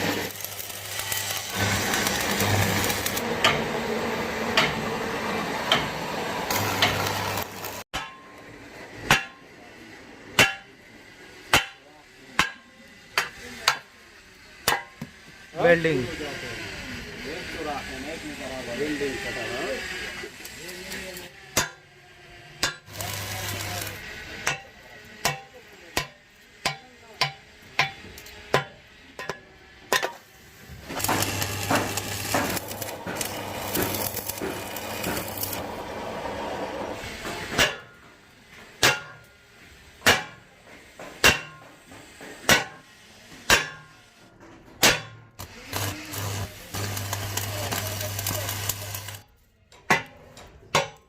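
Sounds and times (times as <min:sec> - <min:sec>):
electric arc welding crackle: 0:00.0 - 0:03.5, 0:05.8 - 0:07.9, 0:17.2 - 0:21.4, 0:22.8 - 0:27.2, 0:30.0 - 0:36.4, 0:45.4 - 0:49.3
hammer striking steel: 0:00.2 - 0:03.8, 0:04.5 - 0:05.0, 0:05.6 - 0:09.6, 0:10.3 - 0:10.8, 0:11.4 - 0:14.0, 0:14.6 - 0:15.1, 0:21.5 - 0:22.0, 0:22.6 - 0:35.6, 0:37.2 - 0:44.1, 0:44.8 - 0:49.1, 0:49.7 - 0:51.0.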